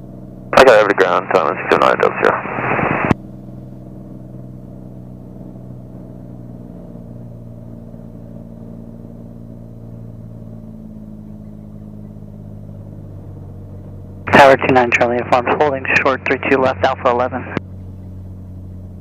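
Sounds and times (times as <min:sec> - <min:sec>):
piston aircraft engine droning: 0:00.0 - 0:19.0.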